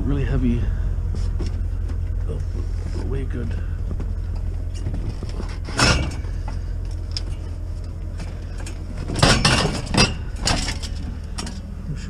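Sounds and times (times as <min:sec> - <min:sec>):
low rumble: 0:00.0 - 0:12.0
scrap metal clattering: 0:01.2 - 0:11.7.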